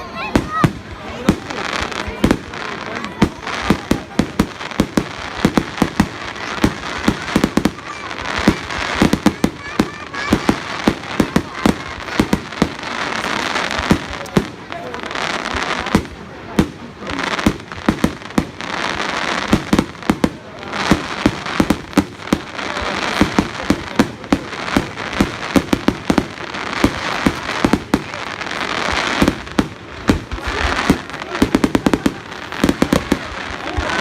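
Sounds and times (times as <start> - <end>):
fireworks bangs and pops: 0.0 - 34.0
hissing crackle: 0.0 - 34.0.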